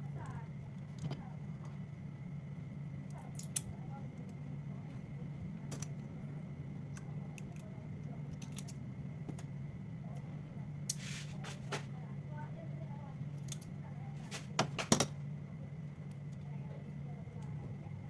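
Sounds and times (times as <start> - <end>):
steady low hum: 0.0 - 18.0
short scrape: 11.0 - 11.7.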